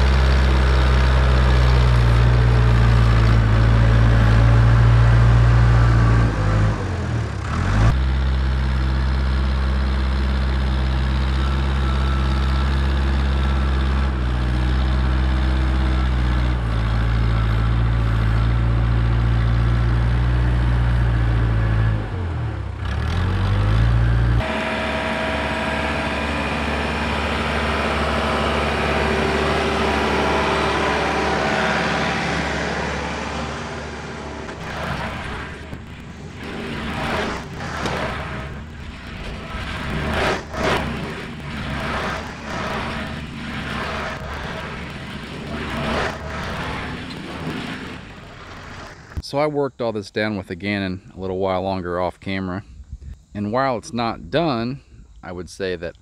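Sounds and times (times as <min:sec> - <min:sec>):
heavy diesel engine under load: 0:00.0 - 0:49.2
lighter noisy machine sound: 0:24.4 - 0:49.2.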